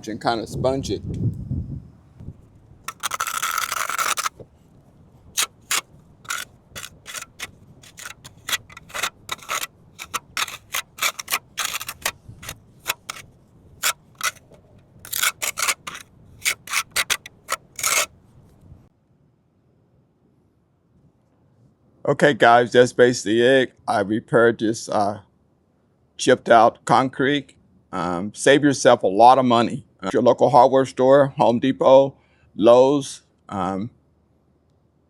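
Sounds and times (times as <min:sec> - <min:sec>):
hand tool scraping cement: 0:02.9 - 0:04.4, 0:05.4 - 0:18.1.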